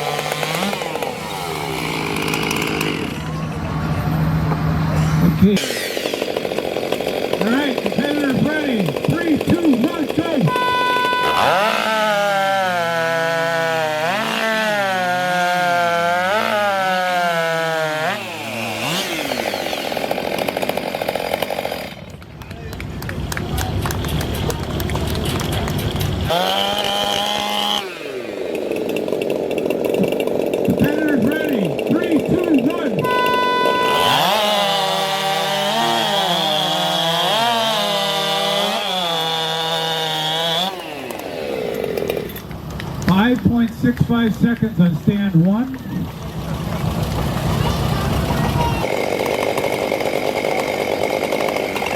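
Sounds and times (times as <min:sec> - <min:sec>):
chainsaw running at full speed: 0:00.0 - 0:51.9
low rattly engine: 0:22.0 - 0:26.3, 0:28.5 - 0:33.6, 0:41.7 - 0:51.9.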